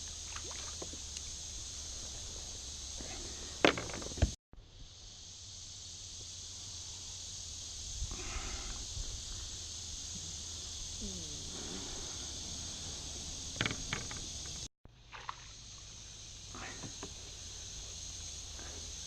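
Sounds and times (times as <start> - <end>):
high-pitched insect chorus: 0.0 - 19.0
low rumble of wind: 7.8 - 14.7.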